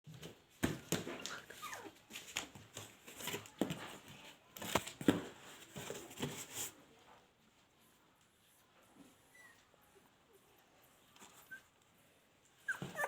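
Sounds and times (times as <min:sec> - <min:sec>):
puppies whimpering and yipping: 0:12.6 - 0:13.0.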